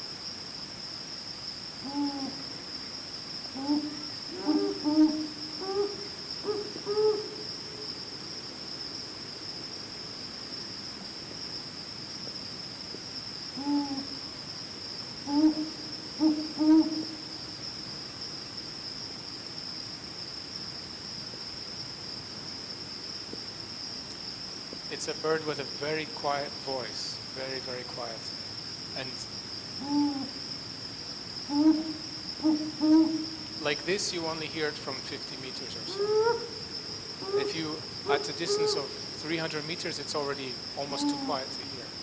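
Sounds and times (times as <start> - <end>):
high insect trill: 0.0 - 42.0
owls hooting softly: 1.8 - 2.6, 3.5 - 7.9, 13.6 - 14.2, 15.2 - 17.4, 29.0 - 30.6, 31.4 - 41.8.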